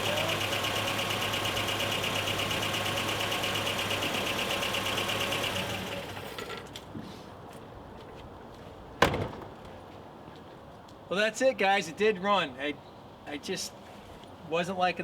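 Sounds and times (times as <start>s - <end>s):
pickup engine idling: 0.0s - 6.5s
single sharp knock: 9.0s - 9.6s.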